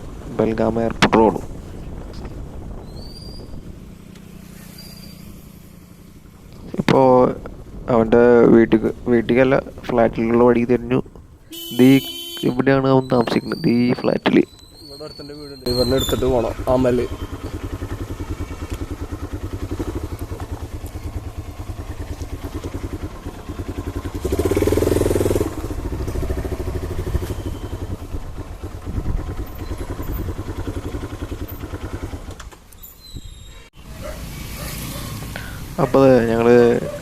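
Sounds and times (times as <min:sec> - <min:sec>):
motorcycle engine running: 0:00.0 - 0:12.4, 0:14.8 - 0:32.7, 0:33.8 - 0:37.0.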